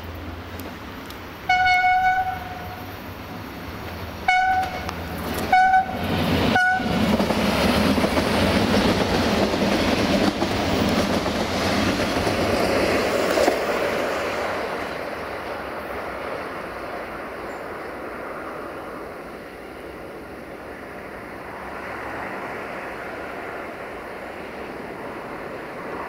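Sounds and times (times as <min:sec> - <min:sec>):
train running past: 0:00.0 - 0:26.0
train horn blasts: 0:01.5 - 0:02.9, 0:04.3 - 0:07.0.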